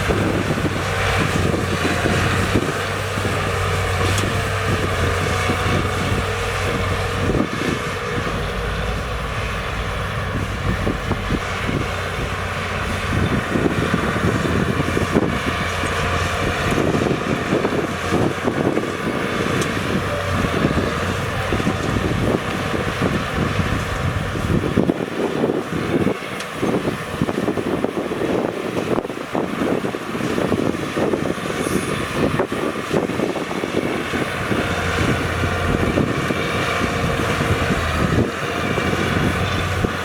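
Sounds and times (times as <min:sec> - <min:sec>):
heavy machinery diesel engines: 0:00.0 - 0:40.0.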